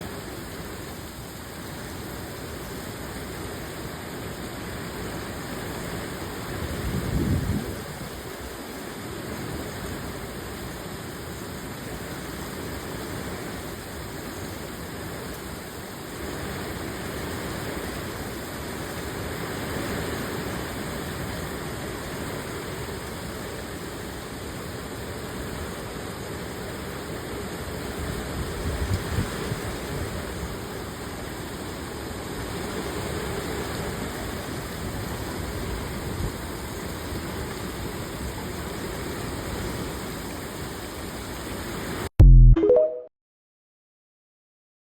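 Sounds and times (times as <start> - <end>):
heavy rain falling: 7.7 - 42.1.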